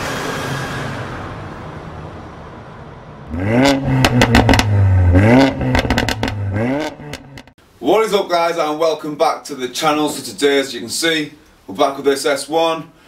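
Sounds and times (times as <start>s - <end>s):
car engine revving: 3.2s - 7.5s
exhaust cracks: 3.2s - 7.6s.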